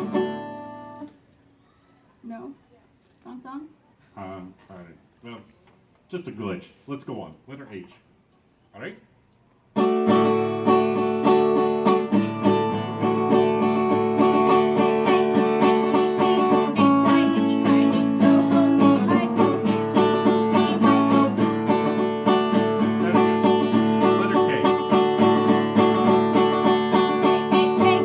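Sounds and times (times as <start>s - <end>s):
guitar and banjo music: 0.0s - 1.1s, 9.8s - 28.0s.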